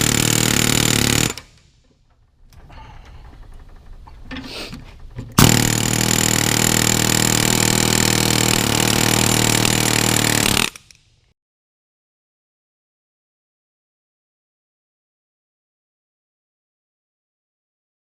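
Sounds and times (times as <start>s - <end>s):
handheld power tool running: 0.0s - 1.6s, 5.4s - 11.0s.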